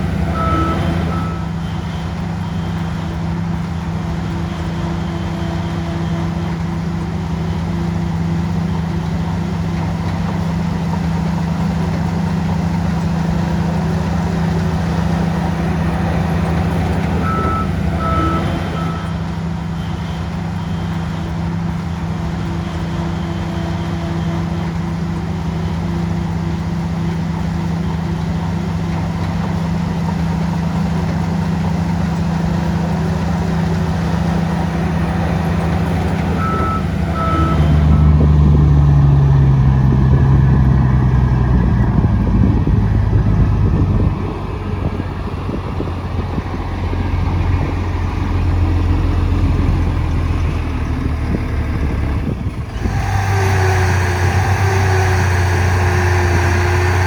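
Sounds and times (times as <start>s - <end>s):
reversing alarm beeps: 0.0s - 6.4s, 15.7s - 22.1s, 34.4s - 39.3s
bulldozer diesel engine: 0.0s - 57.0s.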